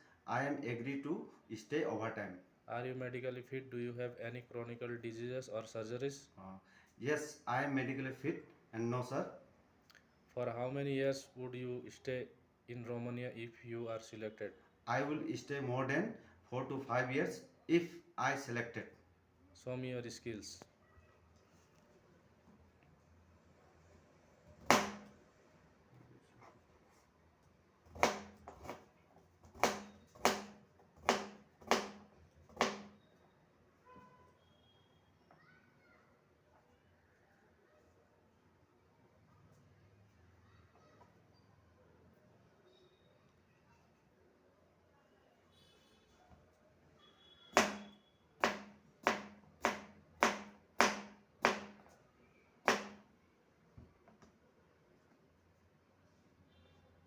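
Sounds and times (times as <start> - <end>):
knife chopping on cutting board: 24.6 - 25.1, 27.9 - 28.8, 29.5 - 32.0, 32.6 - 33.0, 47.6 - 51.8, 52.7 - 53.0.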